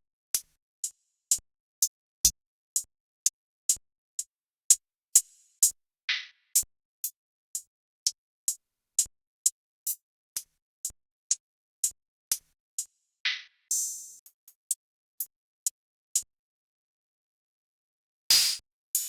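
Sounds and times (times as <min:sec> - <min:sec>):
bright drum ticks: 0:02.3 - 0:03.8, 0:06.6 - 0:12.4
snare-like drum hits: 0:18.3 - 0:19.0.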